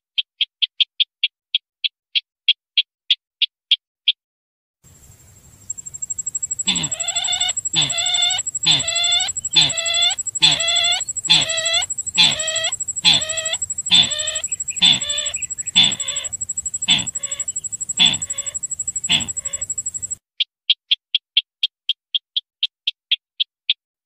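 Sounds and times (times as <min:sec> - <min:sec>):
thin high-pitched whine: 0:05.6 - 0:20.2
bird clucking call: 0:06.2 - 0:20.2.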